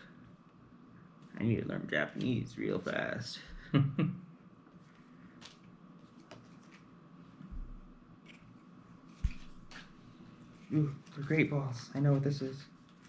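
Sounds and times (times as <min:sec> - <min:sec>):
cards clicking and rustling: 0:04.8 - 0:06.9, 0:08.2 - 0:13.0.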